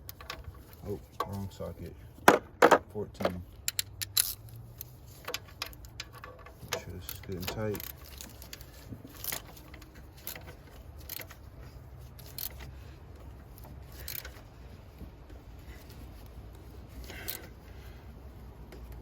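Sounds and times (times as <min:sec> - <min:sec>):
metal tools clicking and scraping: 0:00.0 - 0:01.9, 0:03.2 - 0:14.5, 0:16.9 - 0:17.6.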